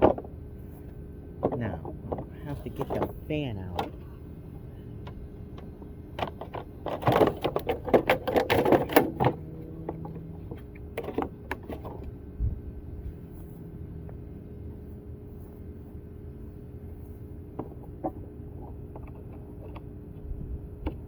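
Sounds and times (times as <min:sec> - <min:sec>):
metal parts clanking and rattling: 0:01.4 - 0:04.1, 0:05.0 - 0:12.1.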